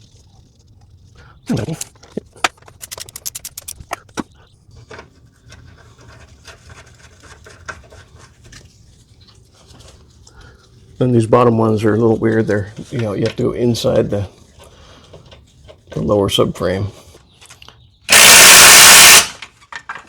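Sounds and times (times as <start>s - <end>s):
rapid clicks: 1.8s - 4.1s.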